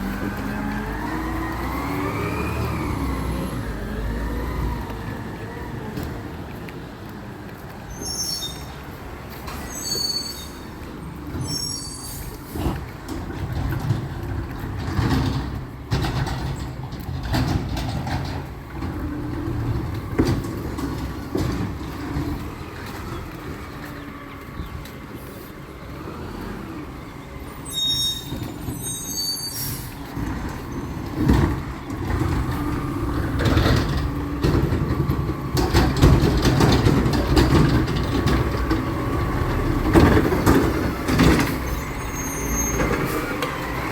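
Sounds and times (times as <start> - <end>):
diesel engine rumble: 0.0 - 43.9
high squeaks: 7.9 - 12.6, 27.5 - 30.1, 41.5 - 43.4
metal clanks and knocks: 12.5 - 23.0, 30.2 - 42.0.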